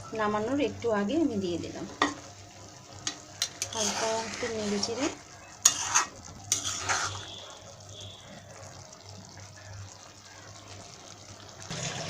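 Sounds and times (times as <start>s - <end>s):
sauce hissing in pan: 1.3s - 12.0s
spatula scraping pan: 3.1s - 7.4s.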